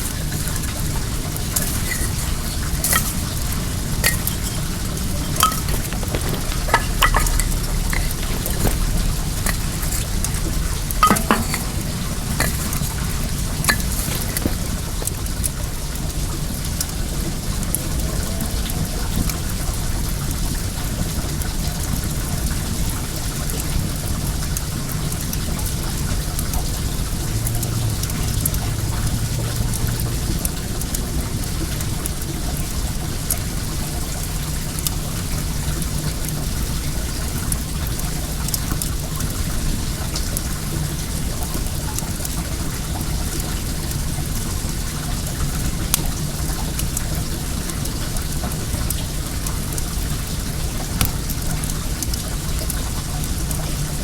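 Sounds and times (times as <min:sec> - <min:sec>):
bonfire crackling and popping: 0:00.0 - 0:15.7
flowing water rushing: 0:00.0 - 0:16.0
water running in a stream: 0:00.0 - 0:54.0.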